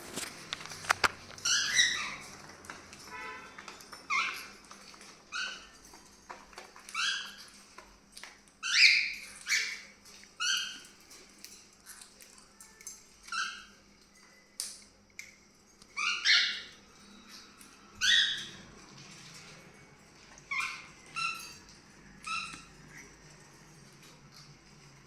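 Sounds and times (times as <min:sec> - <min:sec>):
cockatiel chirps and squawks: 0:01.4 - 0:02.3, 0:08.6 - 0:09.8, 0:16.0 - 0:18.6, 0:20.5 - 0:21.6.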